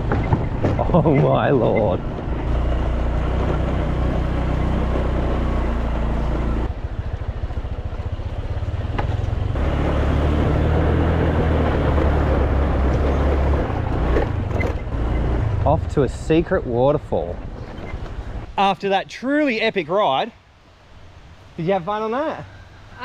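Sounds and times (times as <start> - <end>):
motor scooter engine: 0.0 - 15.7.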